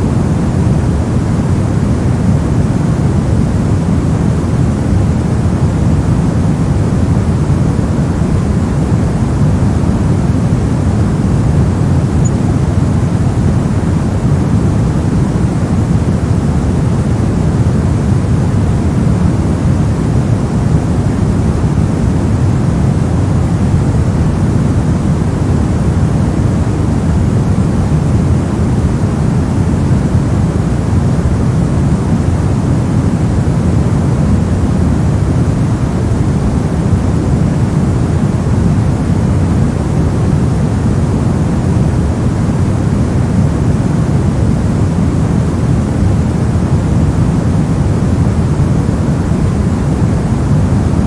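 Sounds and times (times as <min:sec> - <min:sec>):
white noise: 0:00.0 - 0:51.0.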